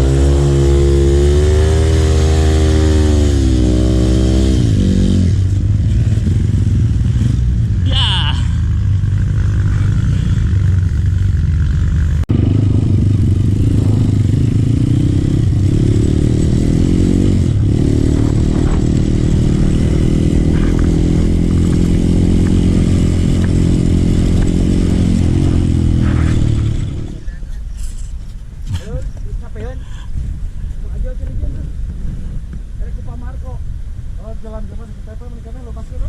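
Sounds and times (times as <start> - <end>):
motorcycle engine running: 0.0 - 27.5.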